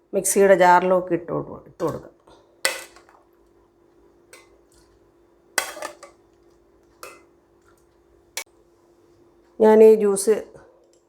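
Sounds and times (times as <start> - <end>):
kitchenware clinking and scraping: 2.7 - 3.2, 5.6 - 6.2.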